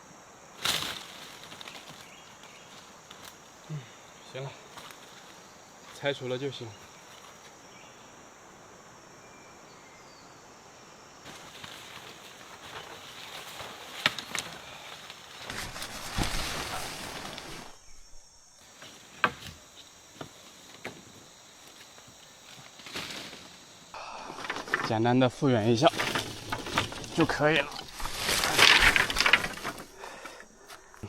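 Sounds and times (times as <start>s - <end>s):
rustling of leaves: 0.0s - 8.2s, 11.2s - 31.0s
insect drone: 0.0s - 31.0s
twigs snapping: 12.8s - 18.2s, 25.8s - 31.0s.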